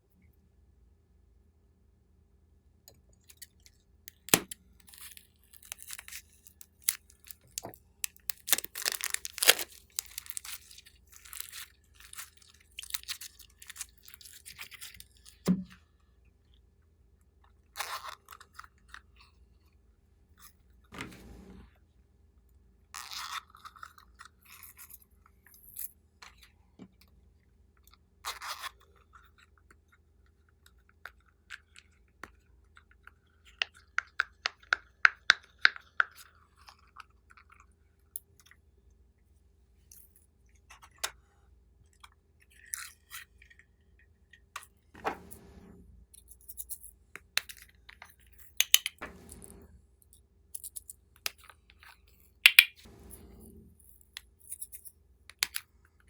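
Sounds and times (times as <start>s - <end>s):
slime clicking and popping: 4.1s - 10.6s, 52.5s - 52.8s.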